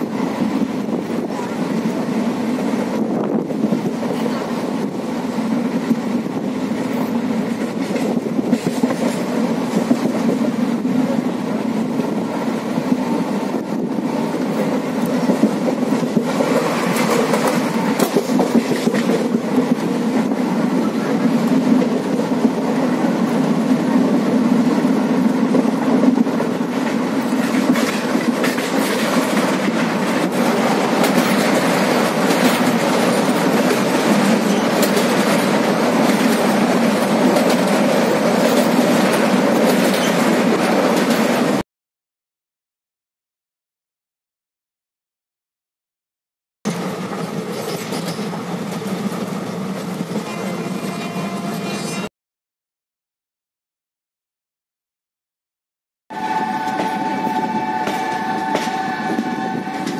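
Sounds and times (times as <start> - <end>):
train rumbling: 0.0 - 41.6, 46.7 - 52.1, 56.1 - 59.9
wheels clicking on track: 26.8 - 41.3.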